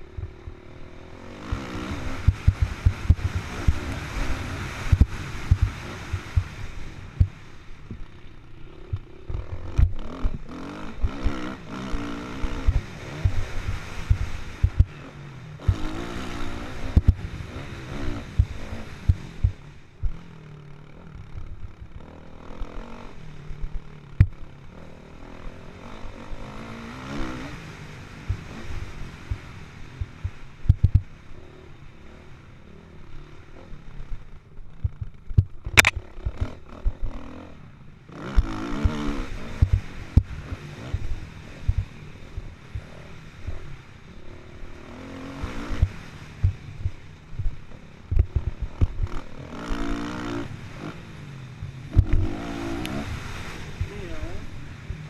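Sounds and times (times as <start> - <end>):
motocross engine revving: 0.0 - 55.0
sharp crack: 35.4 - 36.6.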